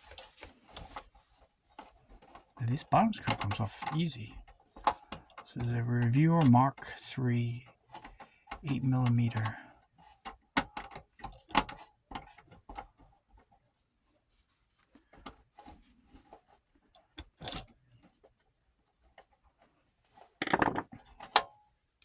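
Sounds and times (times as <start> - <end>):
film viewer parts clicking and rattling: 1.7 - 6.6.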